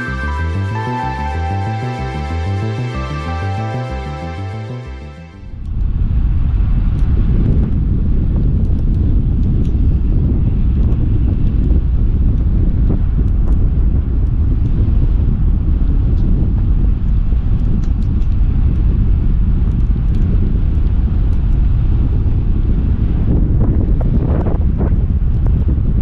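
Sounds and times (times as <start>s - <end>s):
wind buffeting microphone: 5.4s - 26.0s.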